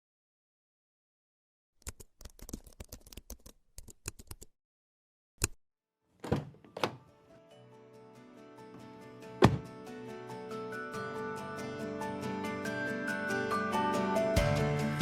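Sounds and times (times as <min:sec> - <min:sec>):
soft music: 0:07.0 - 0:15.0
heavy knocks: 0:09.4 - 0:09.7.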